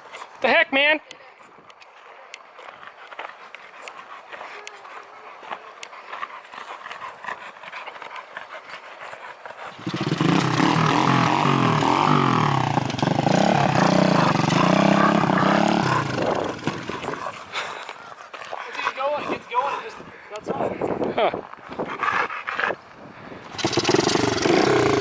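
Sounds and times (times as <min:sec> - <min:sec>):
small minibike engine revving: 0:09.7 - 0:17.2, 0:23.5 - 0:25.0.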